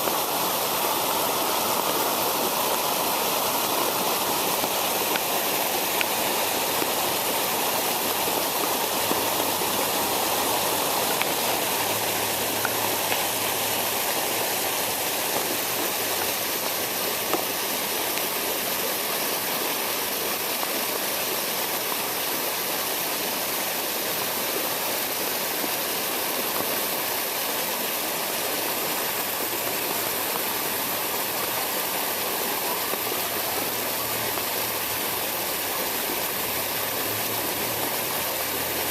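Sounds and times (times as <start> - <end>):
water pouring and rushing: 0.0 - 38.9.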